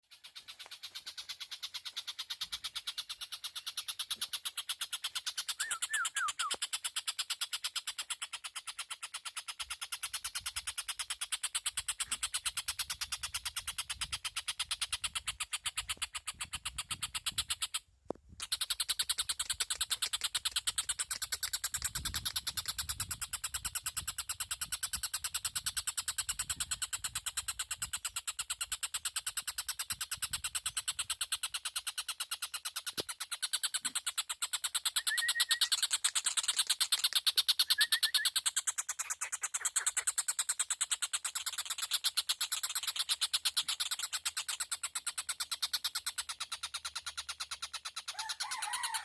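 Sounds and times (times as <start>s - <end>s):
bird pulsed trill: 0.0s - 6.8s, 28.9s - 40.7s
bird chattering call: 0.0s - 17.8s, 26.4s - 49.0s
falling whistled bird notes: 5.6s - 6.6s, 35.0s - 35.8s, 37.6s - 38.4s.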